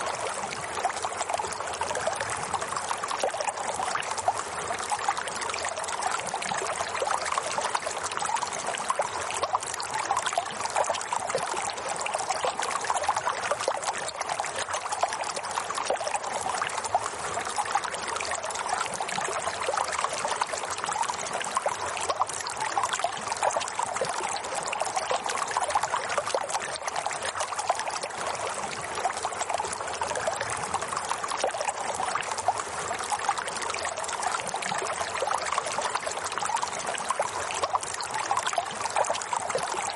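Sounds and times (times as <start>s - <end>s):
water trickling in stream: 0.0s - 39.9s.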